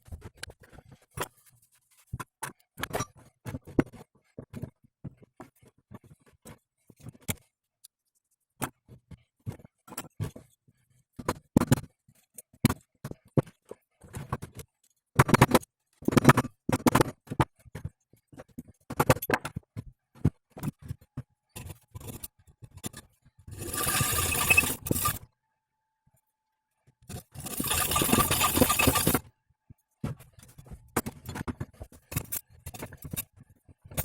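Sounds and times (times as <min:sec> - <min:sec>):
steady scraping noise: 0:23.5 - 0:25.2, 0:27.1 - 0:29.2.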